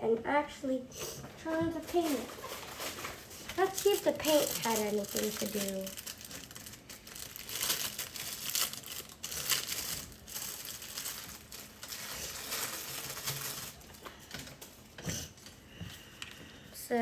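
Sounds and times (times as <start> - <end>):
packaging crinkling and rustling: 1.4 - 16.4.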